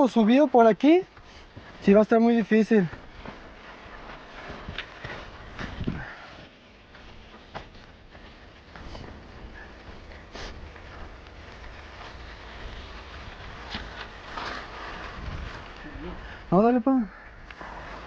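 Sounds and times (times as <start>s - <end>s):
person breathing and sniffing: 8.9s - 10.6s.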